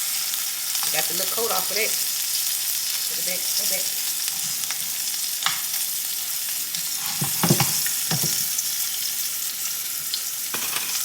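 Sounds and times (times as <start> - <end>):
deep-frying sizzle: 0.0 - 11.0
utensil knocking on pan: 7.2 - 8.5.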